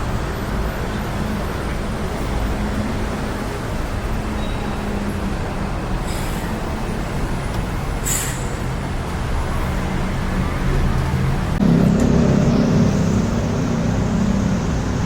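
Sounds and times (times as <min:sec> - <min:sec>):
road traffic engines: 0:00.0 - 0:15.0
short sharp hiss: 0:08.0 - 0:08.5.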